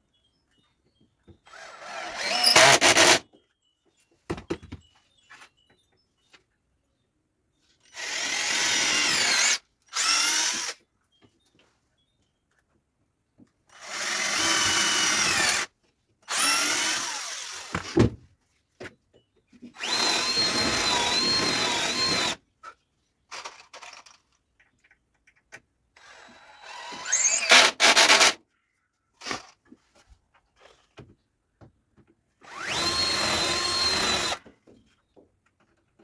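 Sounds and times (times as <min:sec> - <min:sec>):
electric drill running: 0:01.5 - 0:03.2, 0:08.0 - 0:10.7, 0:13.9 - 0:15.7, 0:16.3 - 0:17.7, 0:19.8 - 0:22.4, 0:26.3 - 0:28.4, 0:32.4 - 0:34.4.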